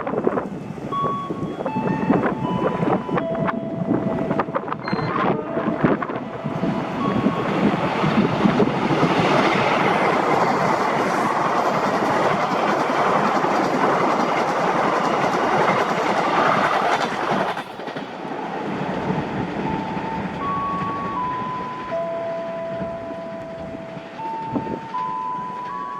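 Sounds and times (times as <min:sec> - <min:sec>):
train wheels clattering over rails: 0:06.0 - 0:19.4.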